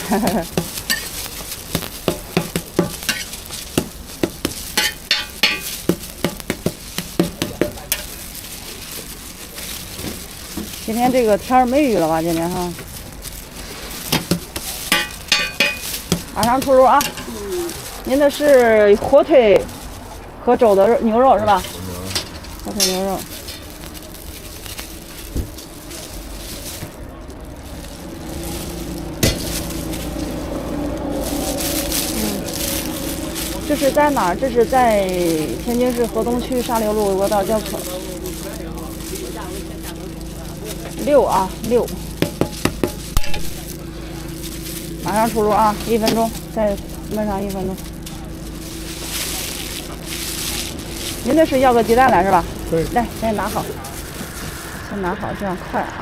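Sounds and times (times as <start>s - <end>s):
food sizzling: 0.0s - 56.0s
metal utensil scraping cooking surface: 0.1s - 20.0s, 20.6s - 23.9s, 42.0s - 43.6s.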